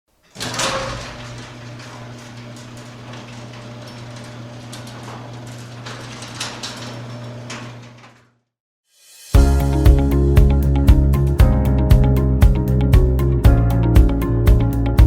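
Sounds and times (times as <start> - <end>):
door clicks and rattles: 0.2 - 8.4
garage door motor hum: 0.2 - 8.4.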